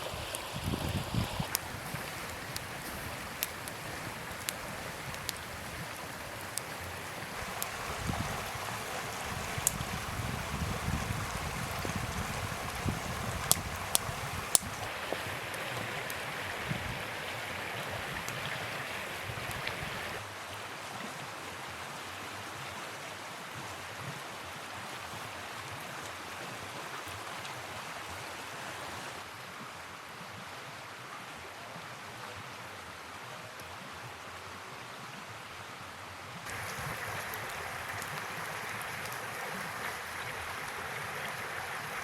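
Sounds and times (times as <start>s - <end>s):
river water rushing: 0.0s - 22.6s, 36.5s - 42.0s.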